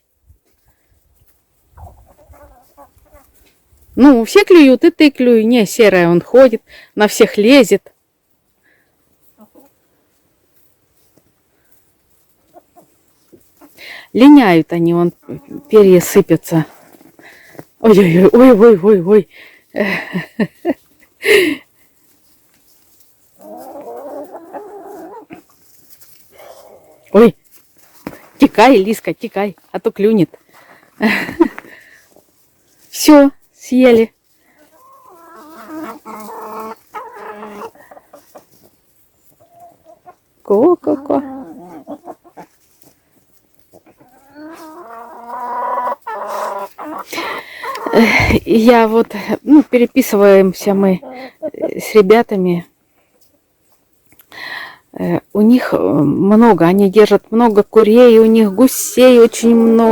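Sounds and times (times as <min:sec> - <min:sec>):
chickens calling: 0:01.7 - 0:03.5, 0:15.0 - 0:15.9, 0:23.3 - 0:27.1, 0:34.4 - 0:49.0, 0:50.6 - 0:51.8.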